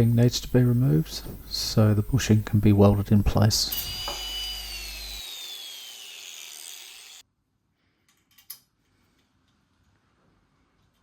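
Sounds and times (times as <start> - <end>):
pneumatic grinder whine winding down: 0.0 - 7.2.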